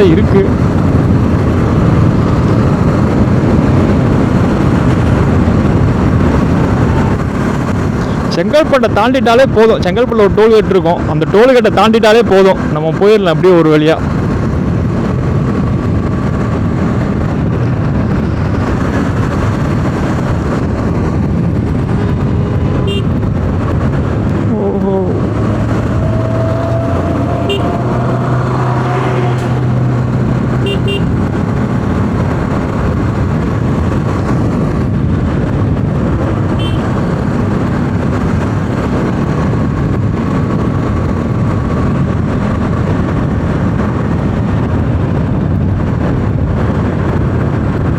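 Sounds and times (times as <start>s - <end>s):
motorcycle engine cruising: 0.0s - 9.6s, 14.0s - 47.9s
wind rush: 0.0s - 47.9s
passing vehicle droning: 21.8s - 32.7s.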